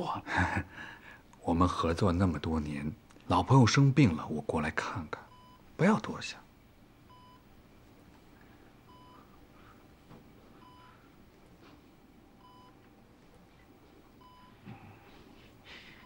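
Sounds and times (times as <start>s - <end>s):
patient monitor beeping: 5.1s - 5.7s, 7.0s - 7.6s, 8.8s - 9.5s, 10.5s - 11.6s, 12.2s - 15.2s.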